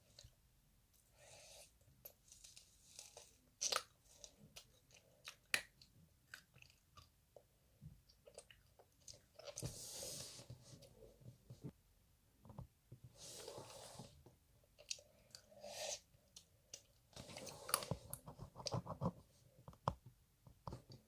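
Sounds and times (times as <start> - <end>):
chewing and crunching candy shell: 3.0 - 7.2.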